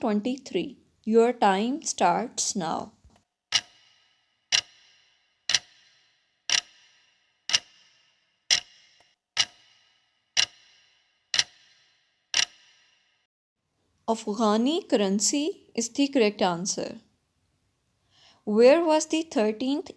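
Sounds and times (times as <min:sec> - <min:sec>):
clock ticking: 0:03.5 - 0:12.9.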